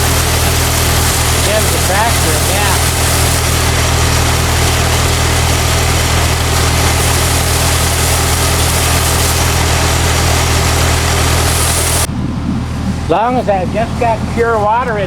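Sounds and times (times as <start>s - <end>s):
power washer water spray hissing: 0.0s - 12.1s
tractor engine running: 0.0s - 15.0s.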